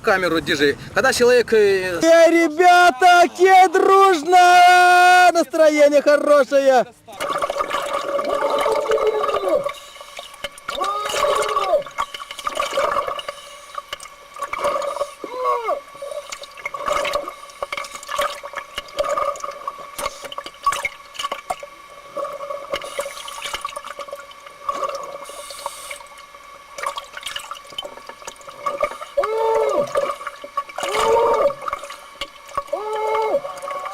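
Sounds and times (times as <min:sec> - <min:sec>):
underwater regulator bubbling: 0:07.2 - 0:33.9.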